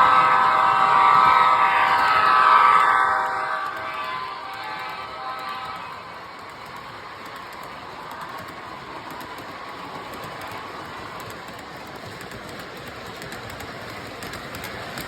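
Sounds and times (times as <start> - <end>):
wheels clicking on rails: 0.0 - 15.0
model train rolling rumble: 4.1 - 15.0.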